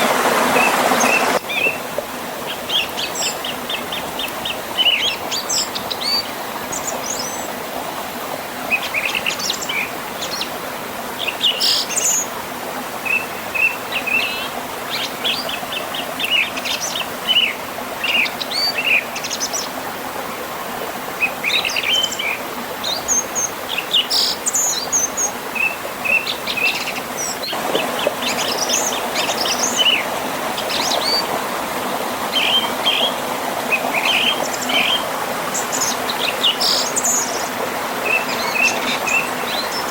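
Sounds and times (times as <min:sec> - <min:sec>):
river and waterfall rushing: 0:00.0 - 0:39.9
songbirds chirping and trilling: 0:21.2 - 0:39.9.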